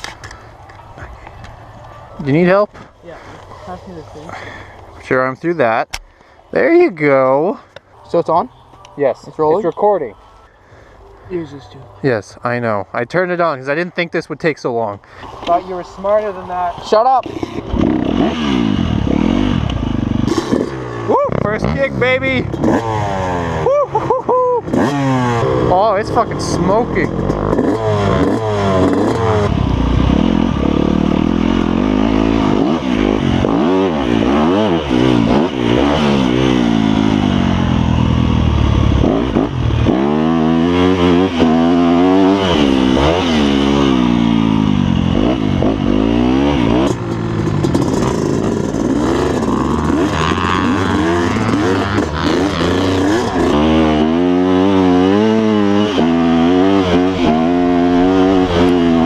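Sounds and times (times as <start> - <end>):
dirt bike engine revving: 15.2 - 59.0.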